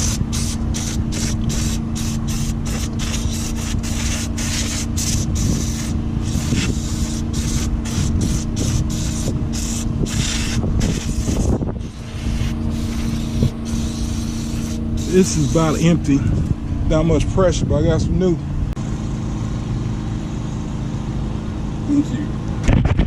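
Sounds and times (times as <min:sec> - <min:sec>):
aerosol can sputtering spray: 0:00.0 - 0:15.8
low hum: 0:00.0 - 0:23.0.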